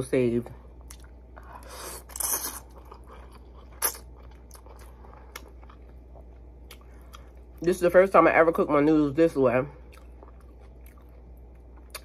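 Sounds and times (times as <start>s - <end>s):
person chewing noodles: 0.8s - 7.6s, 9.8s - 12.0s.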